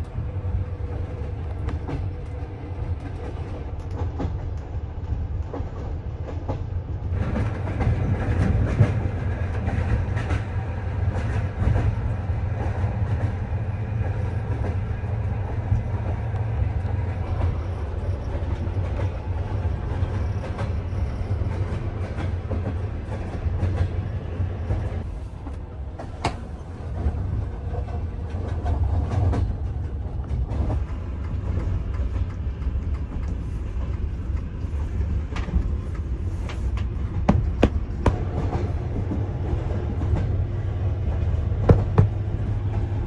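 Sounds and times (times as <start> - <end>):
train carriage rumbling: 0.0 - 43.0
wheels knocking over rail joints: 37.3 - 38.6, 41.7 - 42.4.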